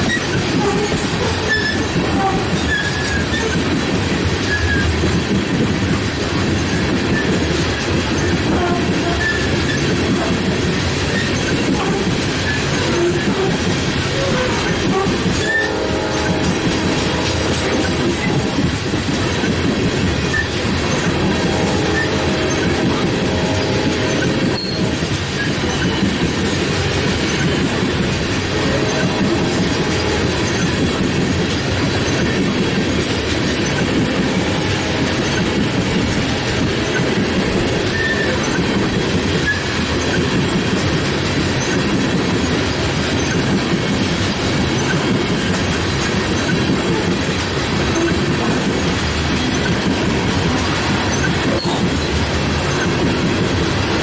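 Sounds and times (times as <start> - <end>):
high wheel squeak: 0.0 - 3.6, 4.4 - 4.9, 8.1 - 10.1, 11.1 - 16.4, 20.3 - 21.1, 24.1 - 26.2, 28.7 - 31.0, 37.8 - 38.8, 51.0 - 52.1
train wheels rumbling on rail: 0.0 - 54.0.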